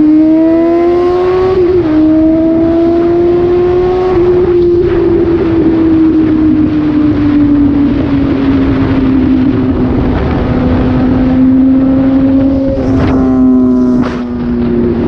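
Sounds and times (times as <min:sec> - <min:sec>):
motorcycle engine running loud: 0:00.0 - 0:15.0
wind on microphone: 0:00.0 - 0:15.0.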